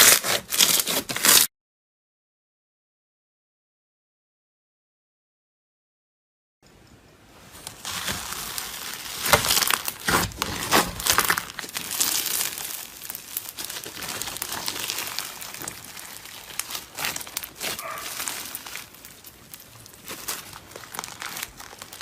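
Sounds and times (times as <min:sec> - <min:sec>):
slime crackling and popping: 0:00.0 - 0:01.5, 0:07.7 - 0:22.0.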